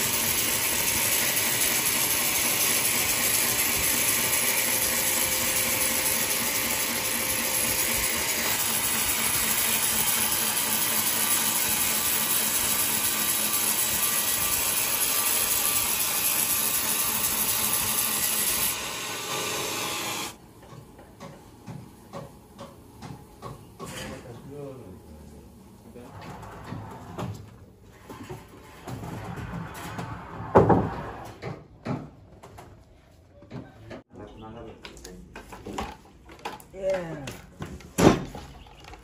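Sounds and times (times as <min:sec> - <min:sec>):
sawmill saw cutting log: 0:00.0 - 0:20.4.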